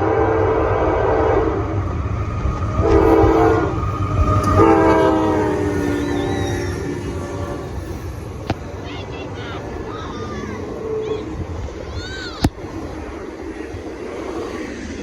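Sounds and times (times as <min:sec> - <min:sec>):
locomotive air horn: 0:00.0 - 0:01.8, 0:02.7 - 0:08.1
passing train rumble: 0:00.0 - 0:15.0.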